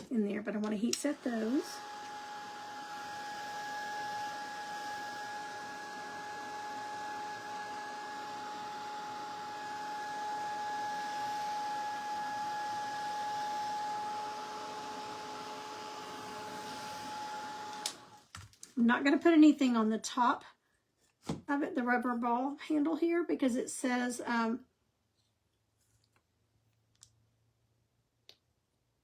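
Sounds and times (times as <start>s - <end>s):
heat tool whining: 0.0s - 18.2s.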